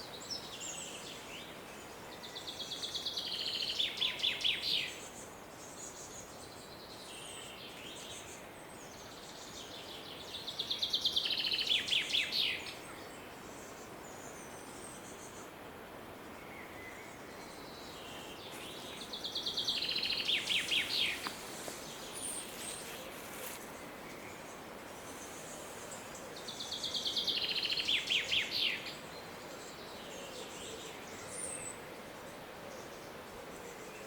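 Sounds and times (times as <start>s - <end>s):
forest ambience hiss: 0.0s - 34.0s
songbird trilling song: 9.0s - 15.5s, 16.4s - 31.8s
faint high bird calls: 16.6s - 29.0s.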